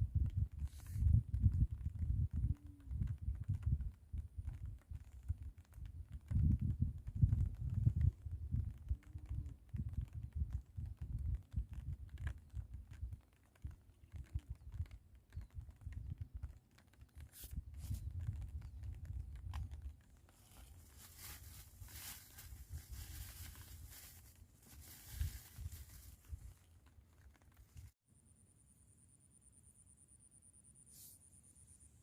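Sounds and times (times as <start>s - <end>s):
wind buffeting microphone: 0.0s - 13.2s
crackling rustling hiss: 0.0s - 28.0s.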